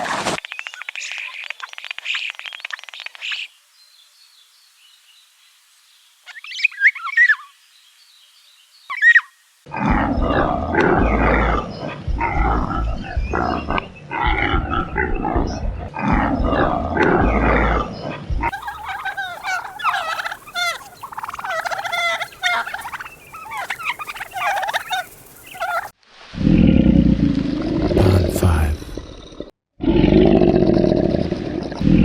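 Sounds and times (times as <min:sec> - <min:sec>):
low rough animal calls: 0:09.7 - 0:32.0
turkeys gobbling: 0:18.4 - 0:26.0.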